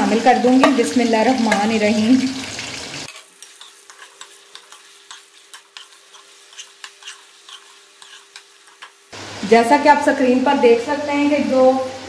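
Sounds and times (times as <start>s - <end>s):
spoon stirring in oil: 0.0s - 9.1s
chicken deep-frying in oil: 0.0s - 12.0s.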